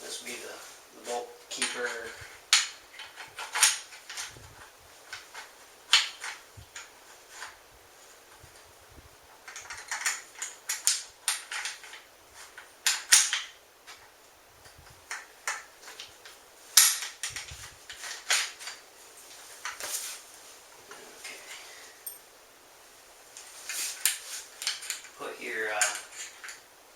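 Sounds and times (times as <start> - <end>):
metal gun parts clicking: 1.6 - 4.3, 9.5 - 12.0, 12.6 - 14.0.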